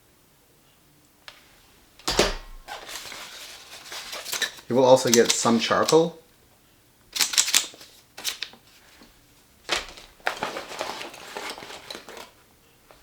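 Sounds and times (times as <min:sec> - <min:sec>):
packaging crinkling and rustling: 0:02.7 - 0:06.1, 0:07.2 - 0:13.0.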